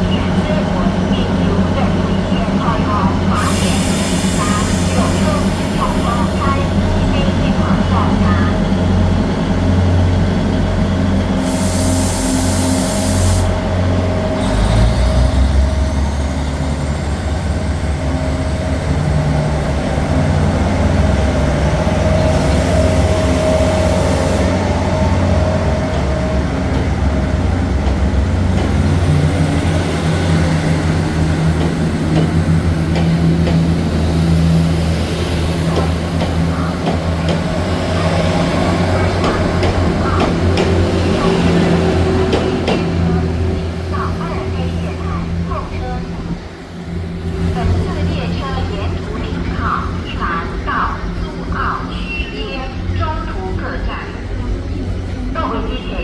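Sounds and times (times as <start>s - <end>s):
train engines droning: 0.0s - 56.0s
brake air hissing: 11.4s - 13.6s.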